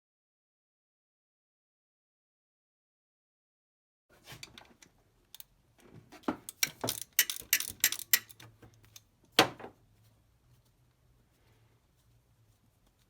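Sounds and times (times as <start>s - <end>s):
metallic clicks of hand tools: 6.4s - 9.1s.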